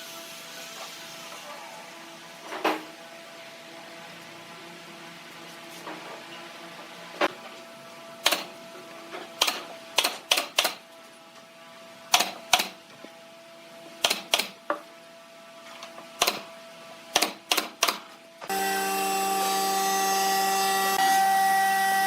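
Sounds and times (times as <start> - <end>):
sharp clicks and knocks: 12.1 - 12.8, 17.2 - 18.1.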